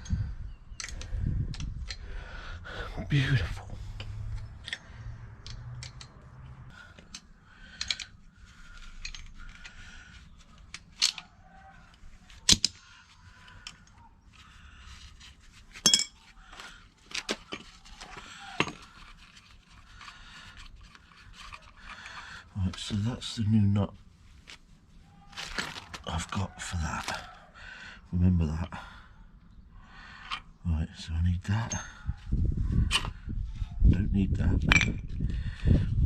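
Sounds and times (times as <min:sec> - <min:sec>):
metal parts and tools clinking: 0:00.8 - 0:02.0, 0:03.9 - 0:06.3, 0:06.9 - 0:12.8, 0:15.7 - 0:16.3, 0:17.0 - 0:23.0, 0:31.6 - 0:32.1, 0:34.7 - 0:35.2.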